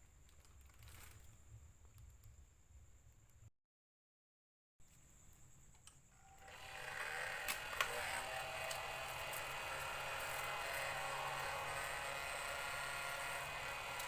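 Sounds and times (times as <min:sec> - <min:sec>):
small fan motor whirring: 0:06.2 - 0:14.0.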